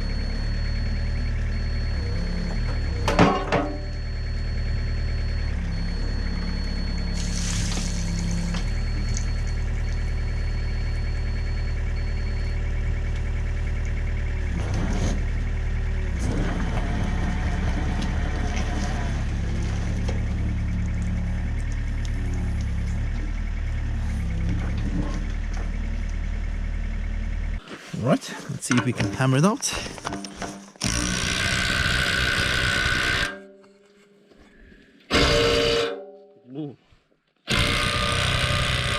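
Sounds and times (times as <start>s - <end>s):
diesel engine idling: 3.9s - 30.1s.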